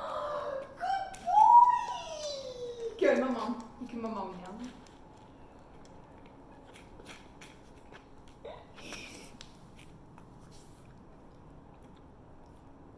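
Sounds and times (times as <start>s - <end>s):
puppy eating: 2.5s - 12.9s.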